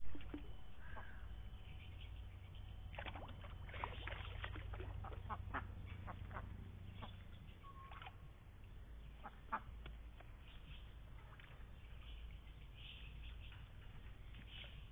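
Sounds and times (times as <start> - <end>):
steady low rumble: 0.0 - 14.9
ducks quacking: 4.7 - 7.2, 9.2 - 9.8.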